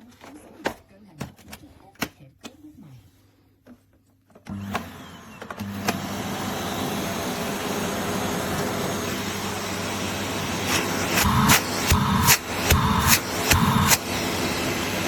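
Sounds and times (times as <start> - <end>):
vacuum cleaner running: 4.5 - 15.0.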